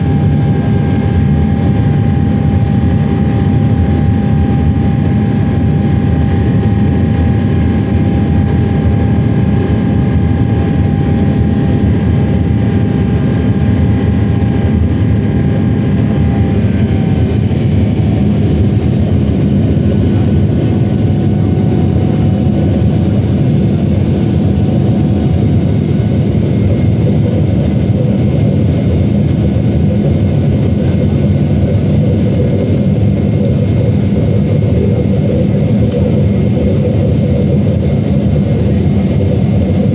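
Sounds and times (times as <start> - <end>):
jet engines roaring: 0.0 - 39.9
thin engine whine: 0.0 - 39.9.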